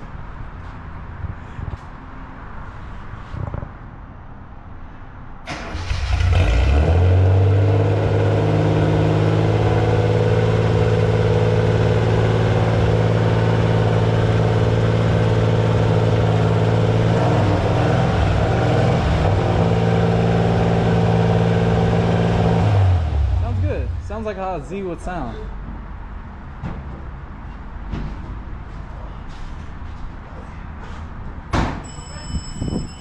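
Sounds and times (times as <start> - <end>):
car engine starting and idling: 5.4 - 24.7.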